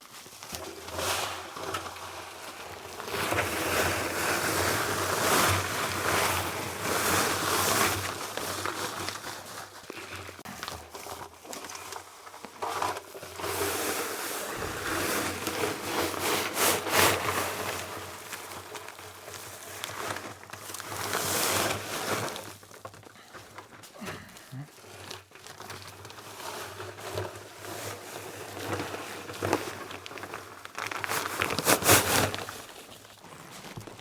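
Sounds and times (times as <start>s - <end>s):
concrete mixer churning: 12.7s - 22.5s
sharp scrapes or knocks: 14.3s - 17.5s.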